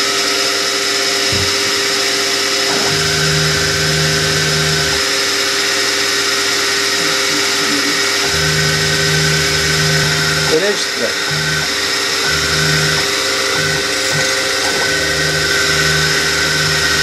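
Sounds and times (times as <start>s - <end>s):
machine tool motor whine: 0.0s - 17.0s
deeper hum: 6.8s - 17.0s.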